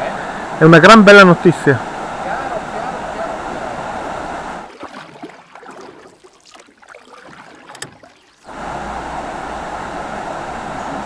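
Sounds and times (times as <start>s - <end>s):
river water rushing over rapids: 0.0s - 5.0s, 8.4s - 11.0s.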